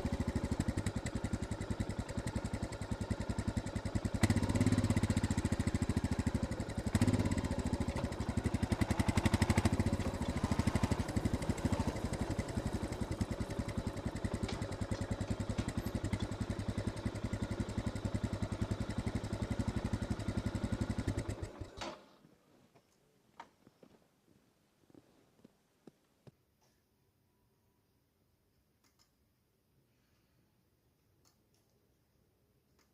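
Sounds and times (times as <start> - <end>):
single-cylinder engine thumping: 0.0 - 22.0.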